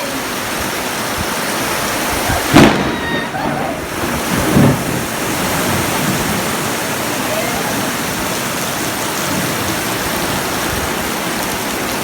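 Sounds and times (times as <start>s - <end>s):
heavy rain pouring: 0.0s - 12.0s
loud thunderclap: 0.5s - 11.1s
low thunder thump: 2.4s - 6.5s.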